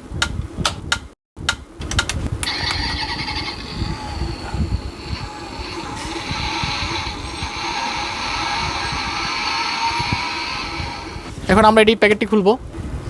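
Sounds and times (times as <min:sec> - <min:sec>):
toy clicks: 0:02.0 - 0:11.3
toy car engine sound effect: 0:02.4 - 0:11.3.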